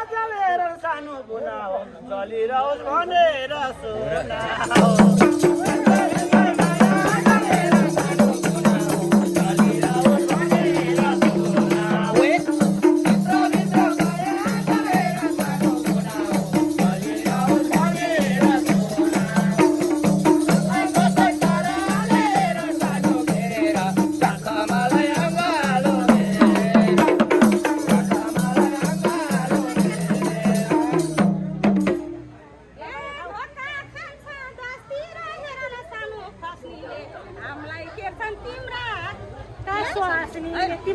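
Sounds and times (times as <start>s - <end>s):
hand percussion: 4.5s - 32.3s.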